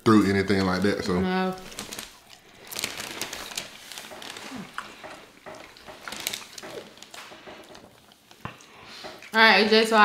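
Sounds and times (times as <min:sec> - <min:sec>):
chewing and mouth sounds: 0:00.8 - 0:09.4.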